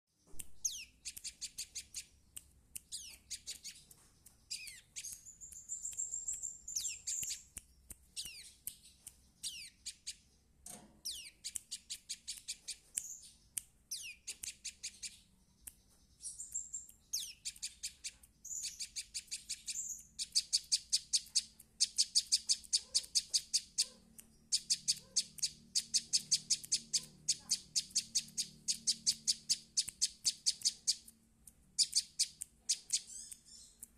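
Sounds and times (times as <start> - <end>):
bird chirps and whistles: 0.6 - 2.1, 2.9 - 3.8, 4.5 - 7.5, 9.4 - 10.2, 11.1 - 13.3, 13.9 - 15.2, 16.2 - 31.1, 31.8 - 33.8
bird fast repeated notes: 0.6 - 8.6, 16.2 - 33.8.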